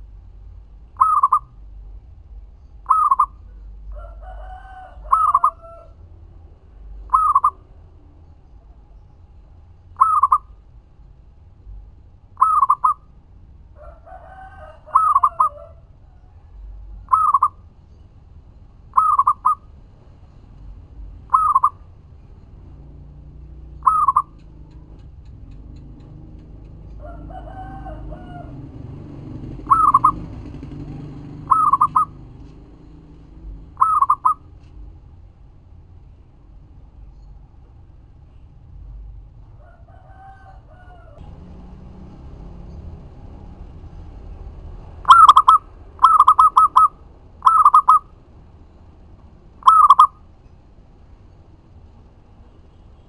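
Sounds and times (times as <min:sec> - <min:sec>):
longer lower bird call: 0:00.9 - 0:01.6, 0:02.8 - 0:03.6, 0:04.9 - 0:05.9, 0:07.1 - 0:07.7, 0:10.0 - 0:10.6, 0:12.4 - 0:13.1, 0:14.4 - 0:18.0, 0:18.9 - 0:19.7, 0:21.2 - 0:22.0, 0:23.6 - 0:25.0, 0:29.5 - 0:32.5, 0:33.7 - 0:34.5, 0:44.9 - 0:48.9, 0:49.5 - 0:50.4
dove cooing: 0:01.0 - 0:01.5, 0:02.8 - 0:06.0, 0:07.0 - 0:07.7, 0:10.0 - 0:10.5, 0:12.4 - 0:13.1, 0:13.8 - 0:16.0, 0:17.0 - 0:17.6, 0:18.9 - 0:19.6, 0:21.2 - 0:21.9, 0:23.6 - 0:34.6, 0:39.7 - 0:48.2, 0:49.5 - 0:50.2.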